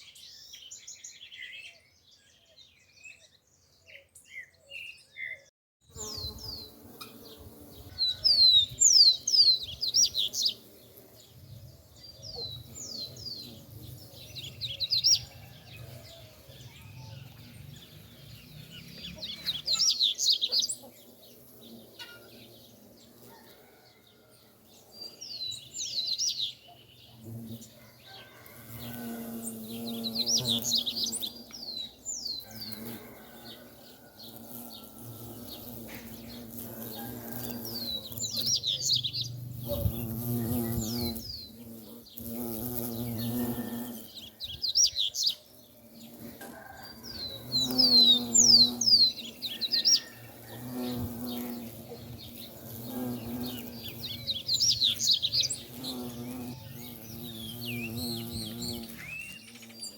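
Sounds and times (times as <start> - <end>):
bumblebees buzzing: 5.8 - 23.8, 27.0 - 59.9
songbird twittering: 47.4 - 59.9.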